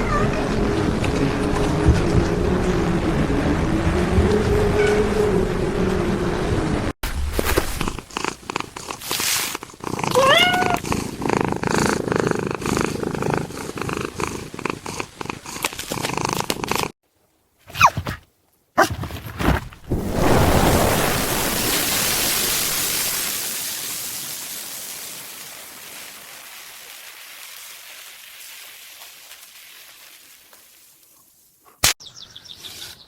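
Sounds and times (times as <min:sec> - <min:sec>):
cat purring: 0:07.4 - 0:17.0
cat meow-like calls: 0:10.1 - 0:10.8.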